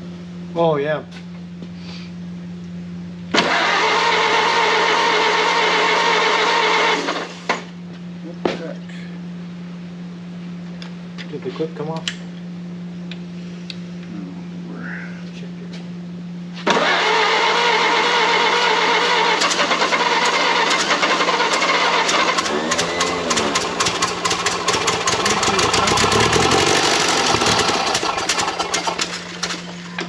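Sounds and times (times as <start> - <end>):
car engine running roughly: 16.7 - 30.0.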